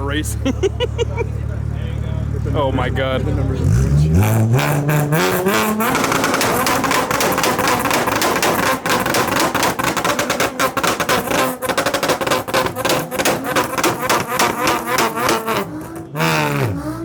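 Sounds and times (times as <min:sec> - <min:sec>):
car engine on rev limiter: 0:00.0 - 0:17.0
exhaust pops and bangs: 0:04.6 - 0:17.0.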